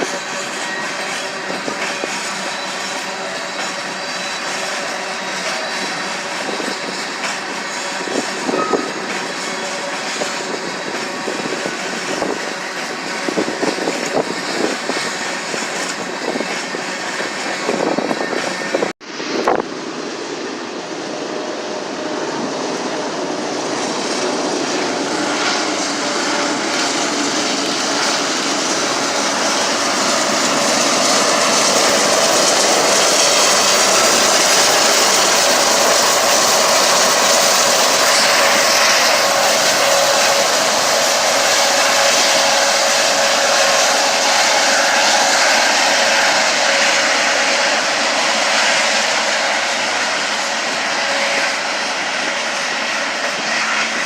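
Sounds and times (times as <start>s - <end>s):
freight train passing: 0.0s - 54.0s.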